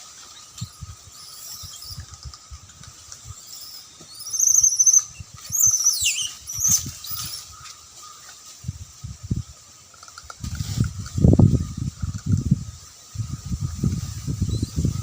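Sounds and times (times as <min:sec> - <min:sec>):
monkeys screaming: 0:03.4 - 0:07.5.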